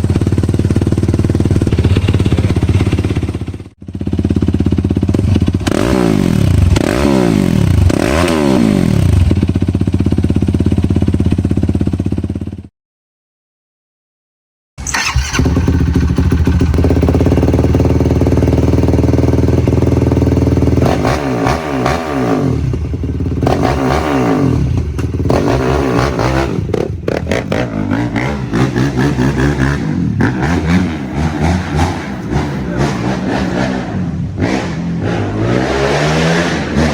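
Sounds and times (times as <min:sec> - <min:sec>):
engine revving: 0:05.1 - 0:09.5, 0:14.8 - 0:36.9.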